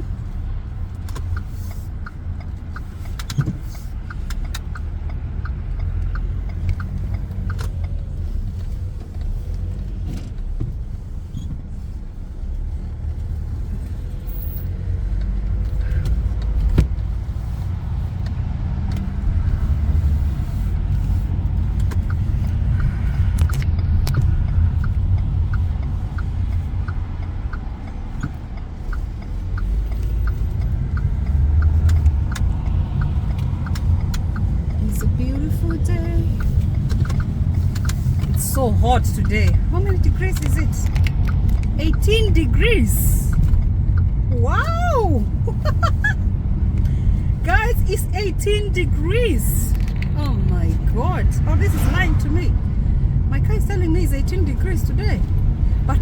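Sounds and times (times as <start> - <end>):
car engine and road rumble: 0.0 - 56.0
light regular ticking: 0.0 - 56.0.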